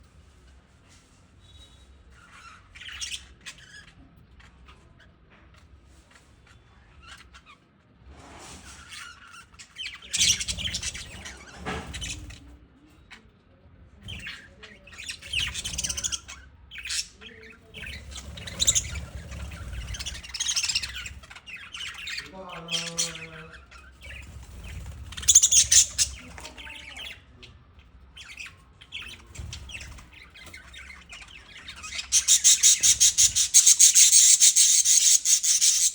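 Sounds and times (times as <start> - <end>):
lovebirds chattering and squawking: 1.6 - 7.8, 8.6 - 35.9
rapid rasping chatter: 14.0 - 27.2, 28.9 - 35.9.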